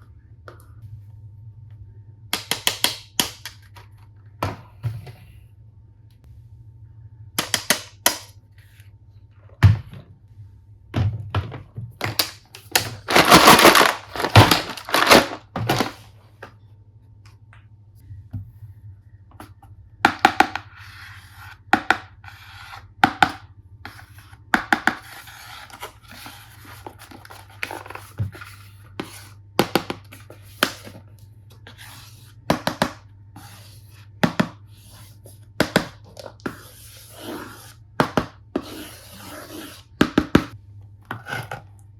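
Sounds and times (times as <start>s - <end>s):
packaging rustling: 12.0s - 16.0s
wrapping tearing: 12.7s - 15.9s.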